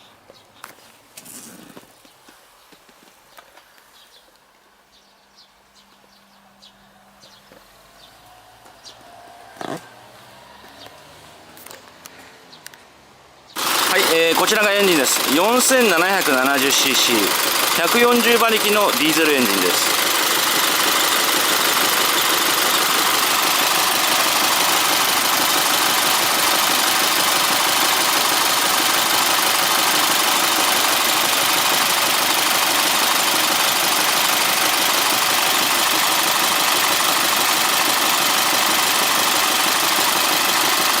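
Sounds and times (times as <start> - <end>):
diesel engine idling: 13.6 - 41.0.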